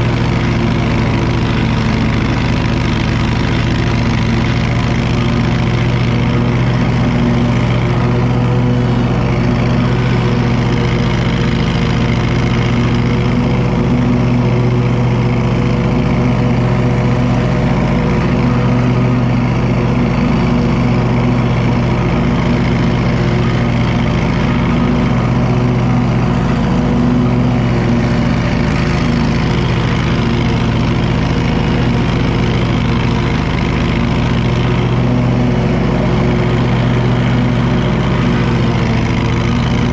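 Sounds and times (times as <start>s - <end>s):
mower engine humming: 0.0s - 39.9s.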